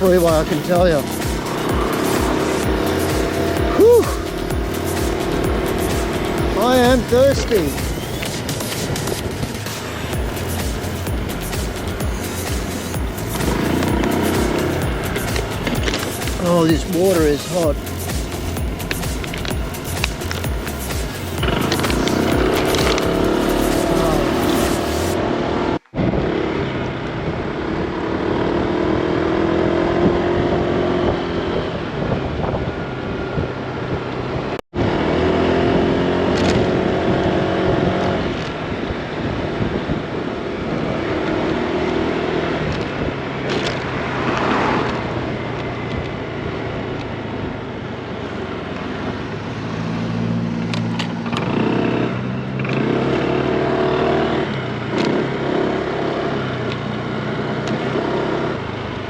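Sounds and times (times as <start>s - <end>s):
scooter engine running: 0.0s - 32.0s
road and wind noise: 0.0s - 59.0s.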